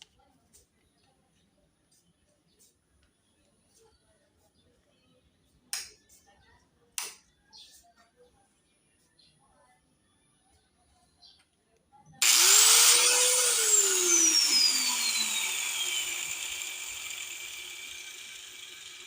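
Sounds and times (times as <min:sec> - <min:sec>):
grinder motor whining: 0:12.2 - 0:19.0.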